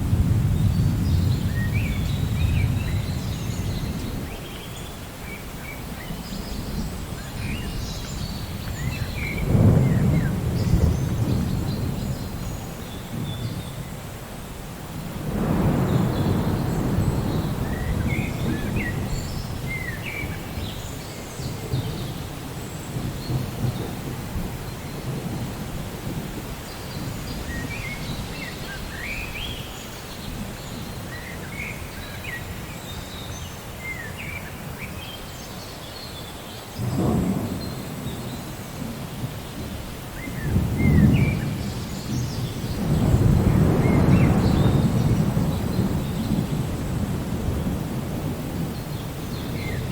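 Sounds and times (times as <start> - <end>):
thunder rumbling: 0.0 - 4.4, 6.3 - 13.6, 15.0 - 29.6, 36.8 - 49.9
steady rain: 0.0 - 49.9.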